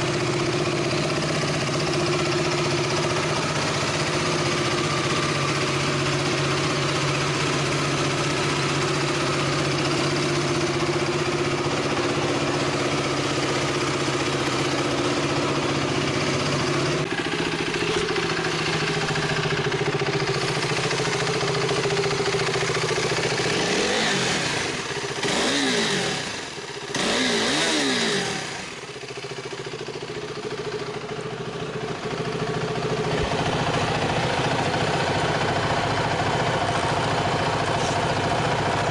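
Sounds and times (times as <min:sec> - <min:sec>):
motorcycle engine idling: 0:00.0 - 0:38.9
motorcycle throttle blips: 0:06.6 - 0:25.8.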